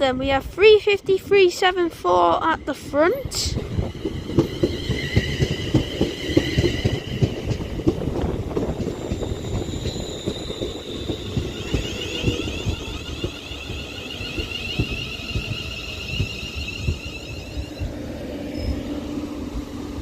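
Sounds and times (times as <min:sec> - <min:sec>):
high pulsing train whine: 0:00.0 - 0:20.0
train wheels knocking over rail joints: 0:03.8 - 0:17.8.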